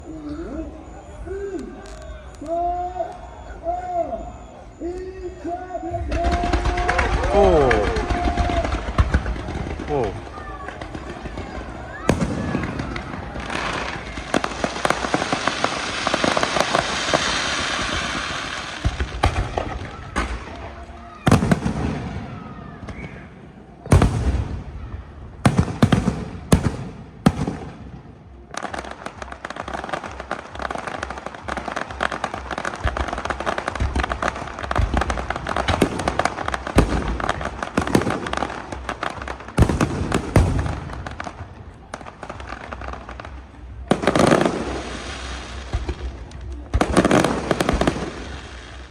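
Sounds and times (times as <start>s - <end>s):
fireworks crackling: 0.0s - 48.9s
fireworks sharp bangs: 0.0s - 48.9s
fireworks thumps: 28.6s - 41.5s.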